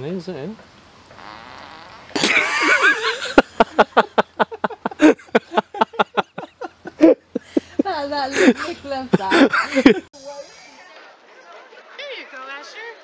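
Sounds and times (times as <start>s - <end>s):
rapid rhythmic laughter: 2.2s - 10.1s.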